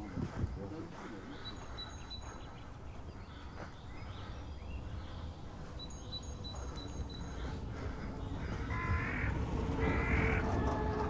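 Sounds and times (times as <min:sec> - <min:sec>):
low outdoor rumble: 0:00.0 - 0:11.0
small bird chirping: 0:01.3 - 0:09.3.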